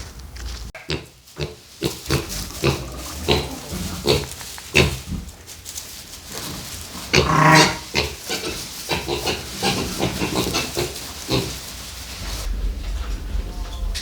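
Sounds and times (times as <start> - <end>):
piglet grunting: 0.8 - 5.3, 7.0 - 11.8.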